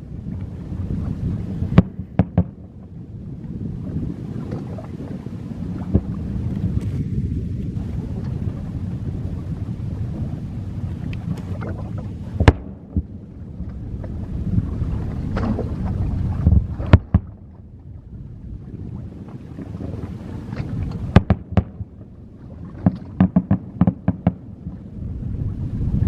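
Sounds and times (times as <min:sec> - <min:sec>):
fireworks bursts rumbling: 0:01.6 - 0:02.7, 0:12.3 - 0:13.4, 0:21.1 - 0:22.0, 0:22.8 - 0:24.4.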